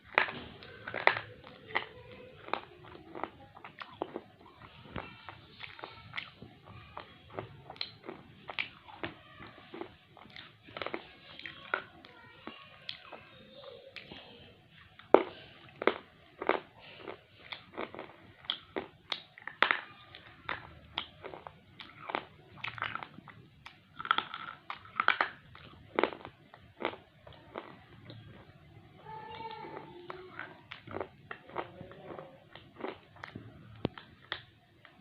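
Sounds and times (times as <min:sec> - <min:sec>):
pencil being chewed crunching: 0:30.1 - 0:34.5.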